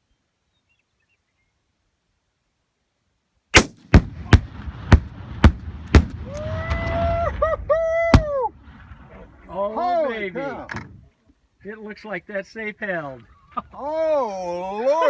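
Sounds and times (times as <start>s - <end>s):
rifle shot: 3.6s - 6.4s
sharp cracks: 3.6s - 7.1s
explosive blast: 3.6s - 7.5s
person shouting: 13.8s - 15.0s.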